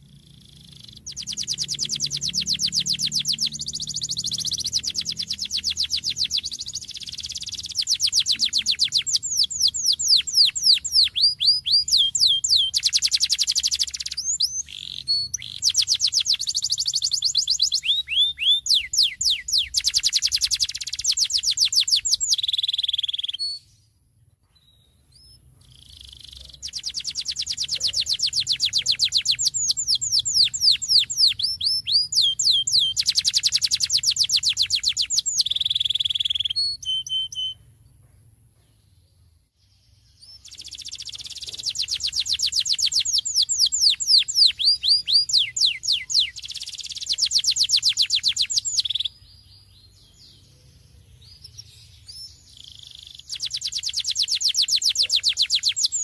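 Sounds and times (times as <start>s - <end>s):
canary singing trills: 0.0s - 23.8s, 24.5s - 37.8s, 39.7s - 56.0s.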